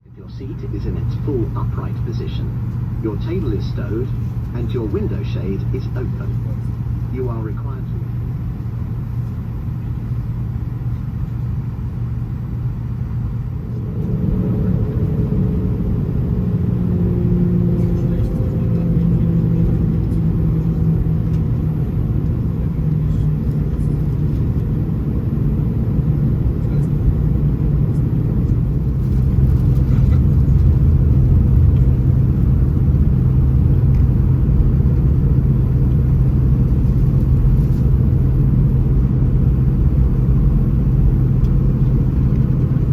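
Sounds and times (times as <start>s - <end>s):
jet engine cabin rumble: 0.0s - 42.9s.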